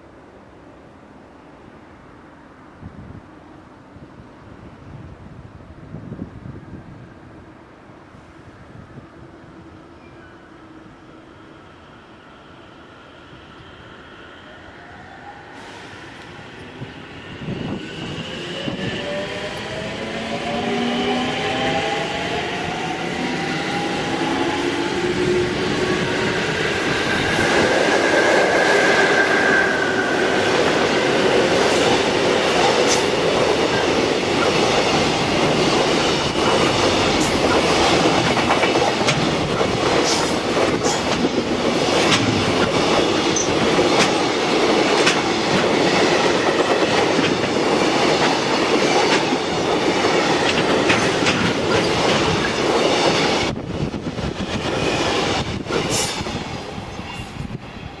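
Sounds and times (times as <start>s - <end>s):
freight train wheels on rails: 9.2s - 58.0s
wheels clicking over rail joints: 48.2s - 53.2s.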